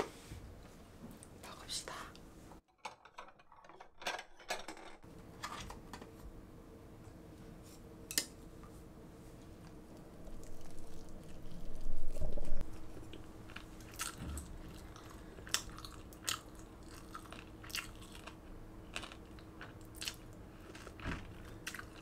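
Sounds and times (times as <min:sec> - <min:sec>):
faint steady hum: 0:05.0 - 0:22.0
crunchy food chewing: 0:12.6 - 0:22.0.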